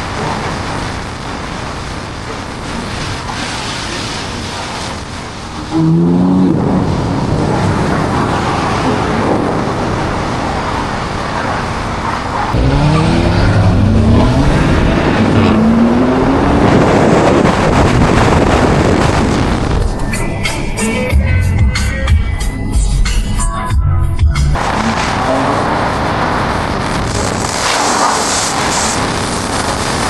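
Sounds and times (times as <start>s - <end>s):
car engine revving hard: 12.5s - 19.5s, 24.6s - 29.2s.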